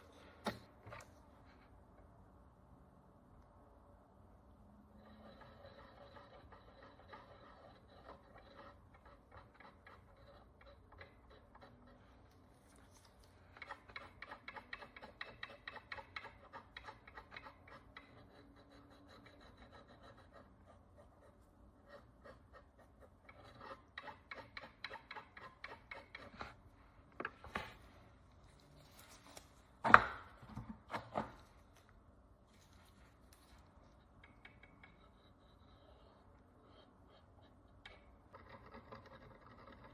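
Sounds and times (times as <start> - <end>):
hand tool scraping a coin: 5.0 - 12.0.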